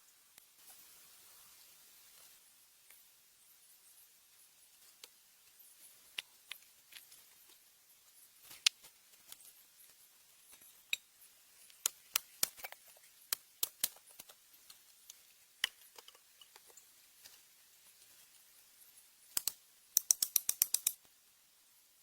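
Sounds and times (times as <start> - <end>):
irregular sharp clicks and taps: 11.7 - 17.4, 19.3 - 21.1.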